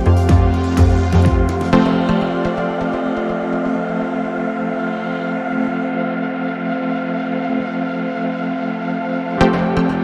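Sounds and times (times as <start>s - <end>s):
deep bass pulse: 0.0s - 2.2s.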